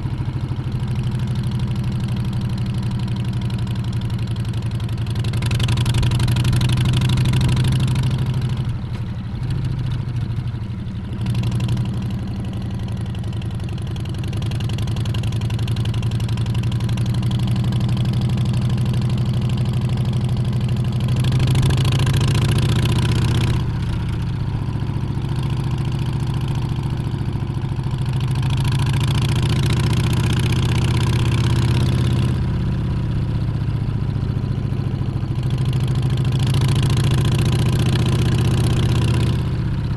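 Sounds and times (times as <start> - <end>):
motorcycle engine revving: 11.2 - 27.1, 27.8 - 39.9.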